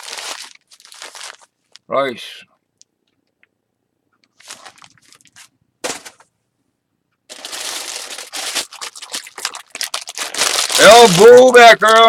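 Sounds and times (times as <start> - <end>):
food packaging crinkling: 0.0 - 1.9, 4.2 - 6.2, 7.3 - 12.0.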